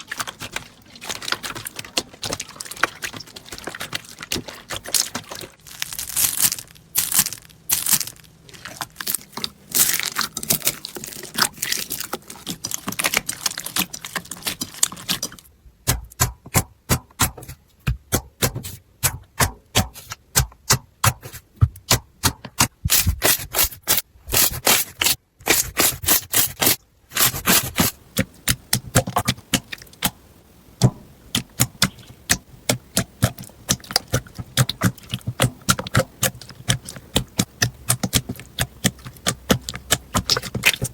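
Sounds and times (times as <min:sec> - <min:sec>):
slime crackling and popping: 0:00.0 - 0:15.5, 0:31.4 - 0:40.9.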